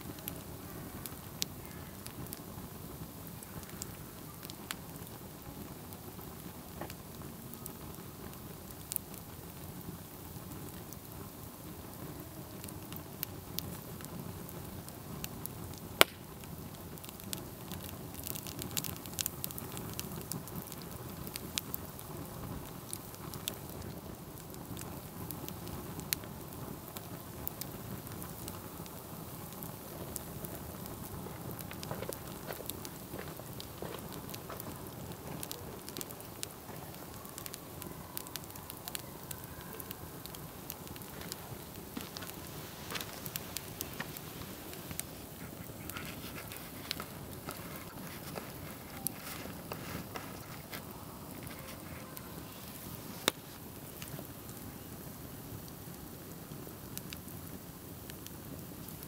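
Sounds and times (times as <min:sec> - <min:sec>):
campfire flames rushing: 0:00.0 - 0:59.0
wood crackling and popping: 0:00.0 - 0:59.0.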